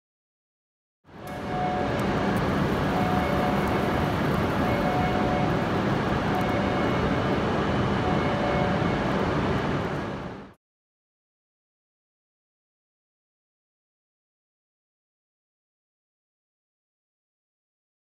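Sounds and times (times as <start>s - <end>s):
train rushing noise: 1.2s - 10.2s.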